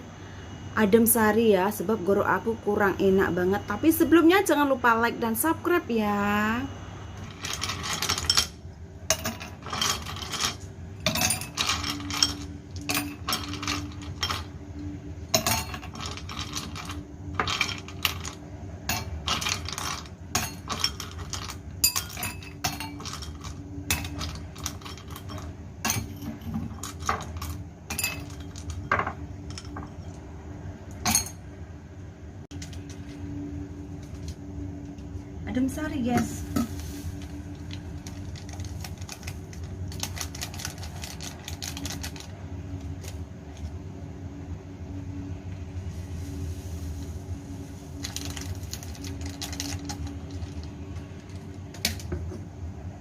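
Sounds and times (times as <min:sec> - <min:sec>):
faint steady hum: 0:00.0 - 0:53.0
tableware clinking: 0:07.4 - 0:14.5, 0:15.4 - 0:16.7, 0:18.9 - 0:30.2, 0:31.0 - 0:31.4.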